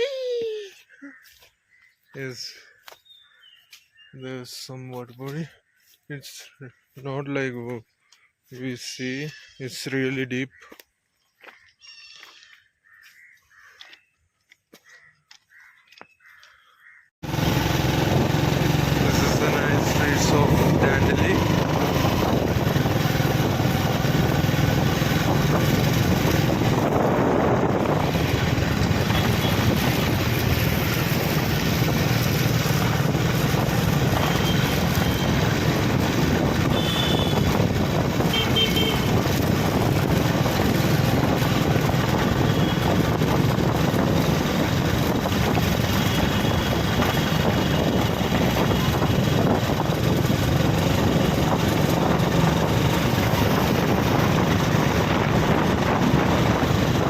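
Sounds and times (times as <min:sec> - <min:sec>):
vehicle engine and road rumble: 0:17.2 - 0:57.0.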